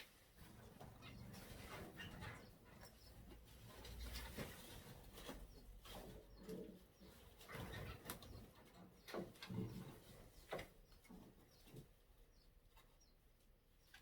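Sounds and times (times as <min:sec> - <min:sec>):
faint low bird calls: 0:05.2 - 0:14.0.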